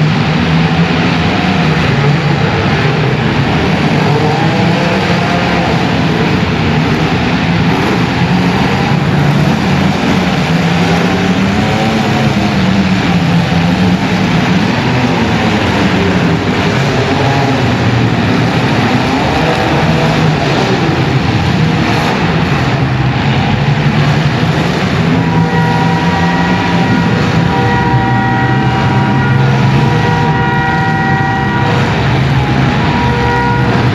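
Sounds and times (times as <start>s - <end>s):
car engines revving: 0.0s - 33.9s
steady high pitched tone: 25.0s - 33.9s.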